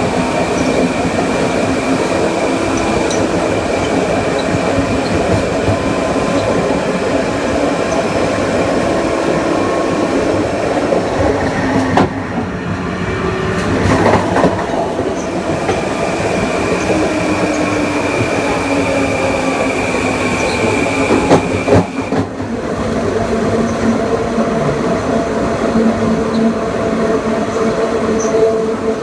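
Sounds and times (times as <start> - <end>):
train traction motors whining: 0.0 - 22.3
wheel-on-rail noise: 0.0 - 29.0.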